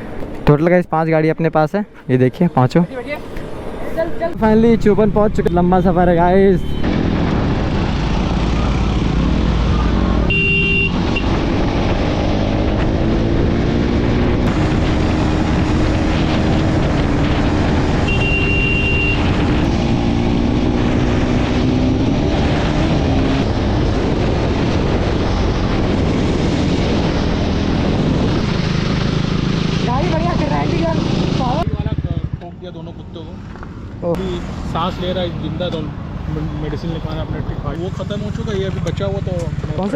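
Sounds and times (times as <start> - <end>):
wind rush: 3.0 - 31.7
motorcycle engine: 4.4 - 39.9.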